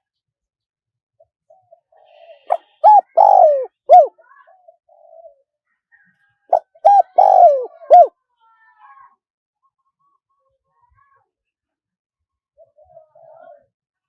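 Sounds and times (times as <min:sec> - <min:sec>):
dove cooing: 0:02.5 - 0:04.1, 0:06.5 - 0:08.1.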